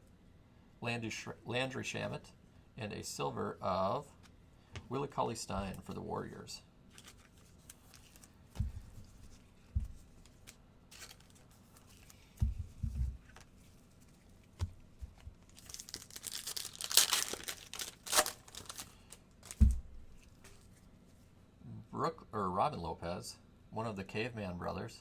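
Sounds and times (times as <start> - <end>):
card pack wrapper tearing and crinkling: 6.9 - 8.3, 10.3 - 12.2, 15.4 - 19.8
dull thumps on a table: 12.4 - 13.2.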